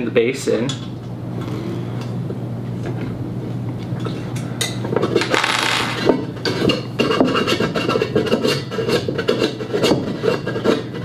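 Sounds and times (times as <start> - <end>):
metal parts scraping and clinking: 5.2 - 6.2.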